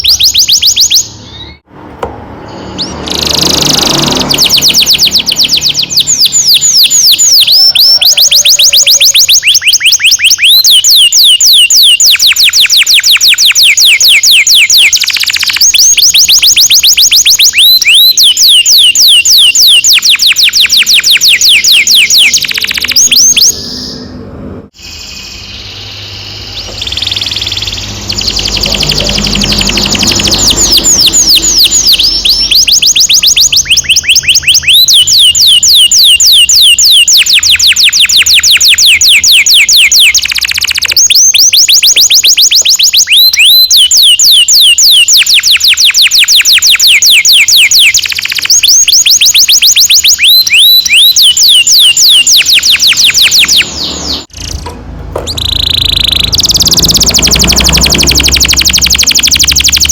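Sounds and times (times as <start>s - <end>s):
canary singing trills: 0.0s - 1.7s, 2.4s - 59.9s.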